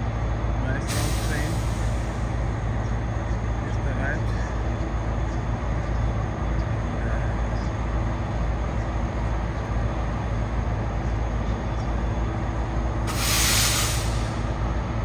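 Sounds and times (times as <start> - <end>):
diesel train engine droning: 0.0 - 15.0
loud hiss: 0.9 - 2.3, 13.0 - 14.5.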